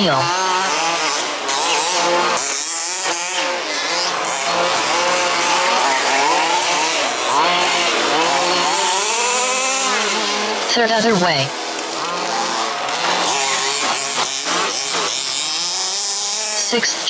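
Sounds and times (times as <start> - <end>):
small two-stroke engines revving: 0.0 - 17.0.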